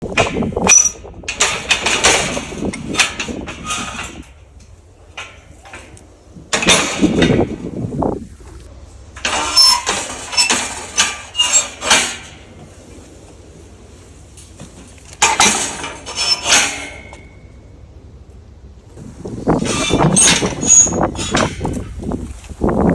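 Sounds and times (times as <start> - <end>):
gate hinges squealing: 0.0 - 8.7, 9.3 - 12.2, 15.6 - 17.3, 19.0 - 22.9
low wind rumble: 0.0 - 9.2, 17.7 - 22.9
metal gates clanking and rattling: 0.0 - 12.6, 15.1 - 17.4, 19.0 - 22.9.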